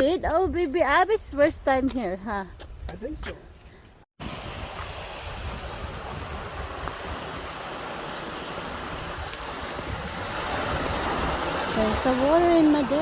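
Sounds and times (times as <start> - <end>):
mountain creek rushing: 4.2 - 13.0
wind rumble on microphone: 4.2 - 13.0.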